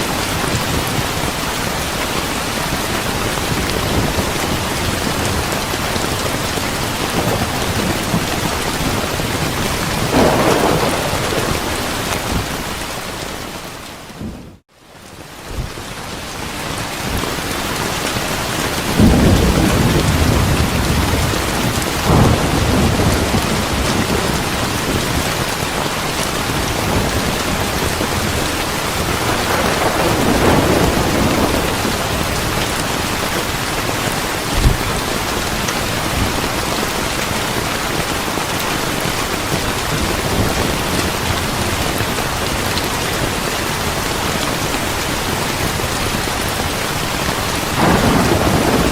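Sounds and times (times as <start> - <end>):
heavy rain: 0.0 - 48.9
distant thunder rumbling: 3.5 - 14.6, 18.9 - 25.6, 26.6 - 33.6, 47.7 - 48.9.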